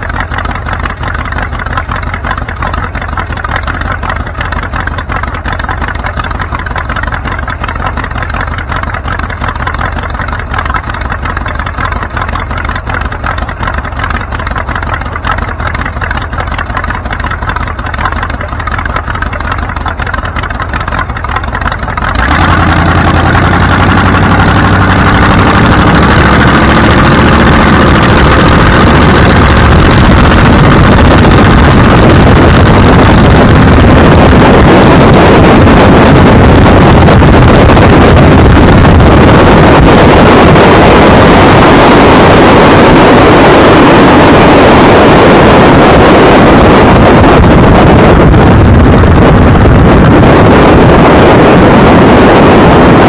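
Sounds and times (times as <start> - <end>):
vehicle engine accelerating: 0.0 - 53.0
wind rush on microphone: 0.0 - 53.0.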